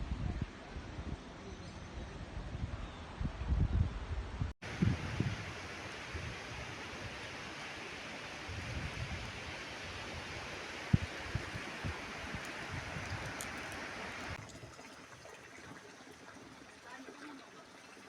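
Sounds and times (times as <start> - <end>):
wind buffeting microphone: 2.0 - 6.7, 8.4 - 14.6
rushing water: 4.6 - 18.0.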